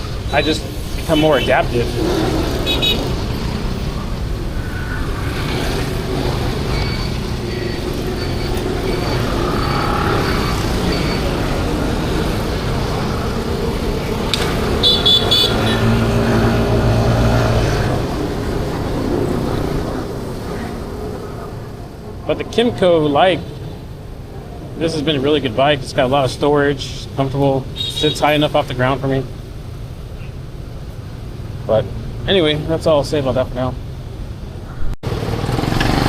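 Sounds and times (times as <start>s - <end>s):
engine passing close: 0.0s - 23.2s, 35.0s - 36.0s
motorbike traffic rumble: 0.0s - 36.0s
short horn toots: 14.8s - 16.7s.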